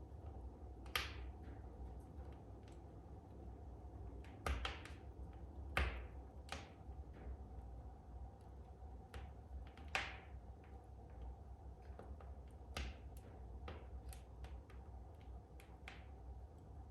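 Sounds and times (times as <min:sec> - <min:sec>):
wood fire crackling: 0:00.0 - 0:16.9
fire pops: 0:04.2 - 0:07.4
low steady rumble: 0:10.4 - 0:16.9.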